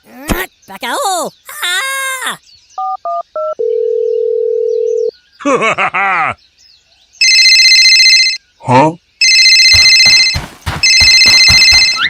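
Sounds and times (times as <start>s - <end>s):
electronic phone ringing: 2.8s - 5.1s, 7.2s - 8.4s, 9.2s - 12.0s
steady phone tone: 3.4s - 5.1s, 9.2s - 12.0s.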